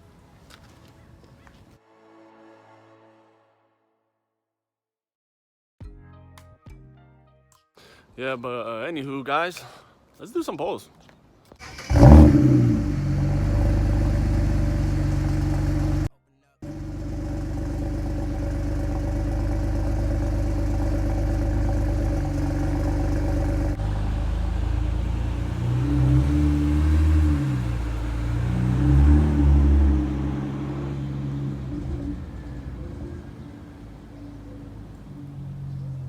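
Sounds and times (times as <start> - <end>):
car engine running: 11.8 - 36.0.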